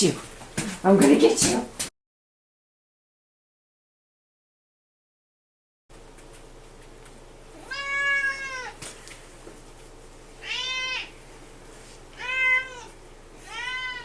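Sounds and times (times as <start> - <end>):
cat meowing: 7.6 - 8.8, 10.4 - 11.1, 12.2 - 14.0.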